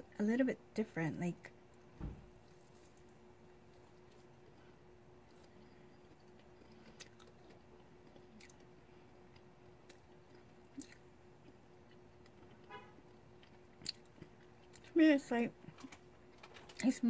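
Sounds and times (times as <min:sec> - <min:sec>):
steady low hum: 0:00.0 - 0:17.0
faint chewing of marshmallow: 0:02.4 - 0:15.0.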